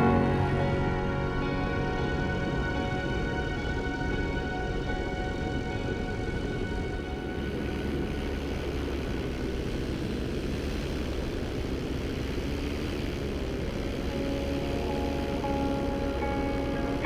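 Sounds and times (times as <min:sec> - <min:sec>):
paramotor engine and propeller: 0:07.3 - 0:14.6.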